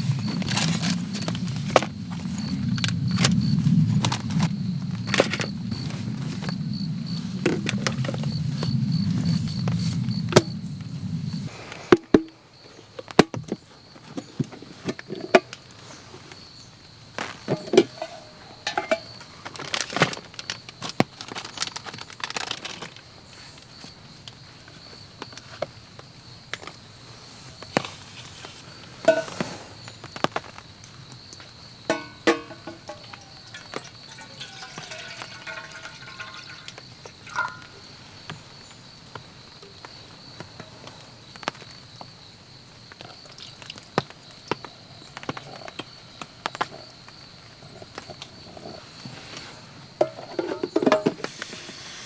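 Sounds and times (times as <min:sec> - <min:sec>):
camp gear clicking and crinkling: 0:00.0 - 0:06.5, 0:17.2 - 0:23.5, 0:31.9 - 0:38.3
high insect trill: 0:28.5 - 0:49.1.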